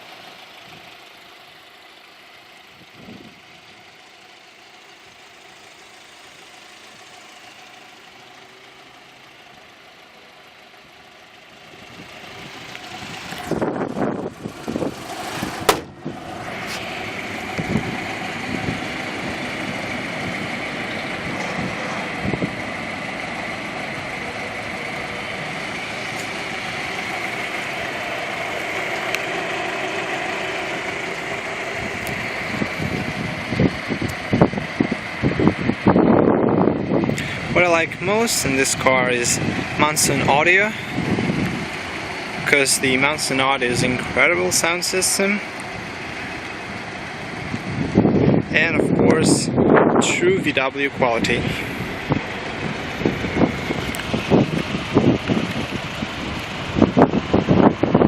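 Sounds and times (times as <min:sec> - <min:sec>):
car engine idling: 0:00.0 - 0:58.0
constant engine whine: 0:00.0 - 0:58.0
engine knocks: 0:11.0 - 0:44.8, 0:45.4 - 0:58.0.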